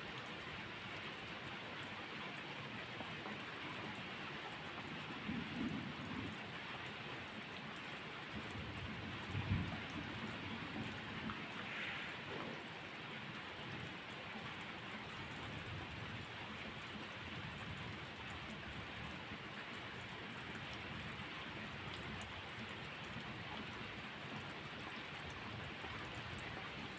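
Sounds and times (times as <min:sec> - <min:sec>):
steady rain: 0:00.0 - 0:26.9.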